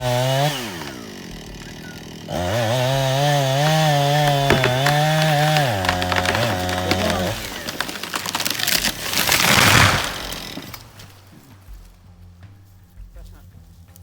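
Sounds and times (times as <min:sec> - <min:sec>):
chainsaw engine revving: 0:00.0 - 0:12.0.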